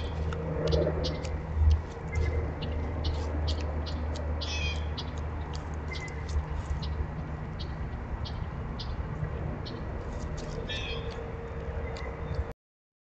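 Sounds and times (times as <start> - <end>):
small birds chipping: 0.0 - 12.5
steady low hum: 0.0 - 12.5
high bird call: 10.7 - 11.2.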